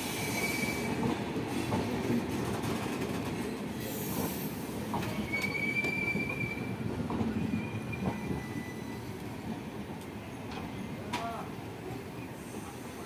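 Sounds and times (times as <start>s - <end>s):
train coaches rumbling: 0.0s - 13.0s
high wheel squeal: 7.5s - 9.2s.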